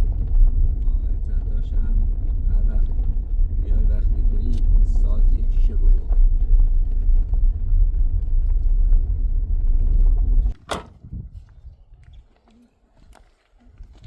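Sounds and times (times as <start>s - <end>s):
vehicle engine rumble: 0.0s - 14.0s
single clunk: 10.6s - 11.1s.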